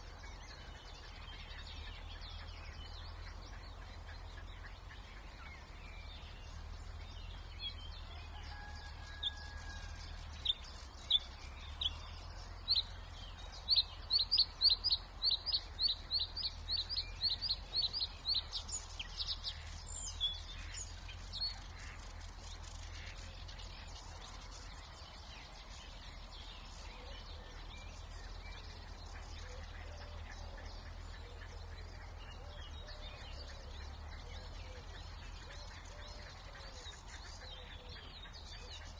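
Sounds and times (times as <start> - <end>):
distant traffic hum: 0.0 - 38.9
songbird singing: 0.0 - 38.9.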